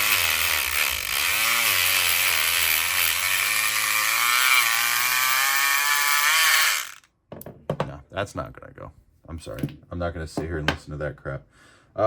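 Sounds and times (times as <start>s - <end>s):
electric pick gun buzzing: 0.0s - 7.1s.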